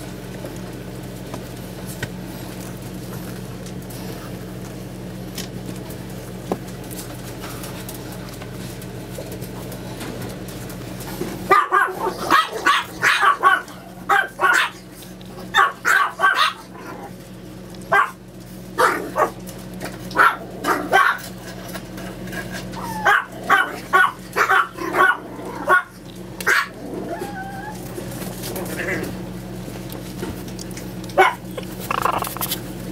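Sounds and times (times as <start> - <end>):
puppies yipping: 11.5 - 14.8, 15.5 - 16.7, 31.2 - 32.5.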